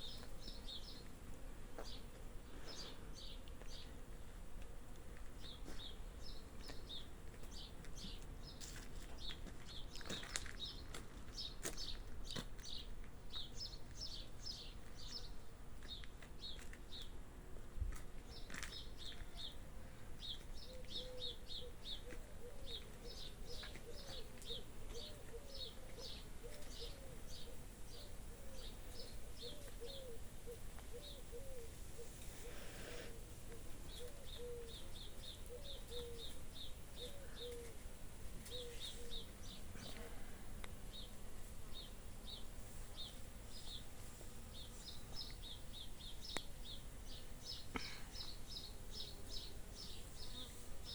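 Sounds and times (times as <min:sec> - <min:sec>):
birds chirping: 0:05.3 - 0:17.2, 0:18.2 - 0:50.9
lower-pitched bird call: 0:20.6 - 0:33.2, 0:33.9 - 0:36.4, 0:38.4 - 0:39.3.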